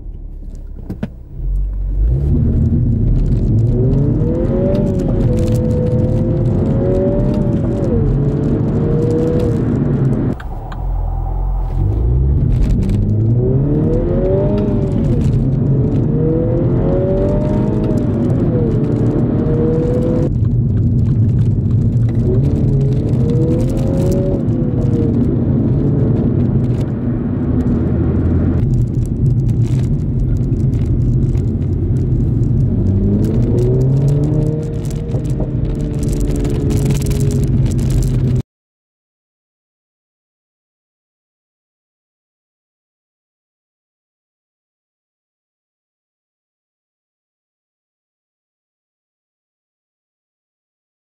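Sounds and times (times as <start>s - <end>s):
car engine accelerating hard: 0.0s - 38.4s.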